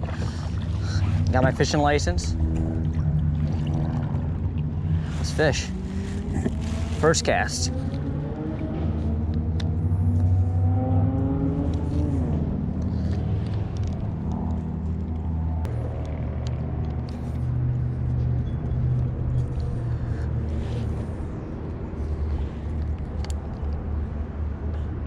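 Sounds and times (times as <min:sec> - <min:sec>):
vehicle engines running: 0:00.0 - 0:25.0.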